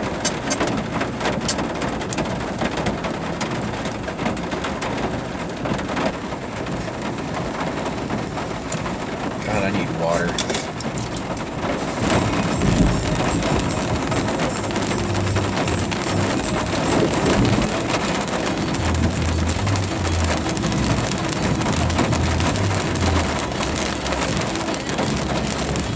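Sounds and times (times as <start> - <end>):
heavy rain on windshield and roof: 0.0 - 25.9
low hum: 12.0 - 25.9.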